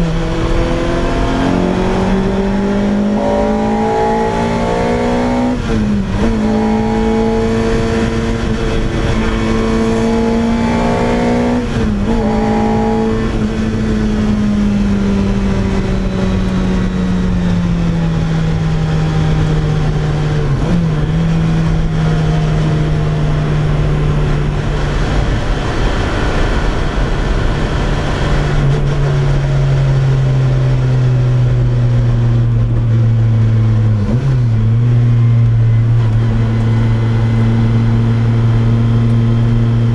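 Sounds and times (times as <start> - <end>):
car engine and loud exhaust: 0.0 - 39.9.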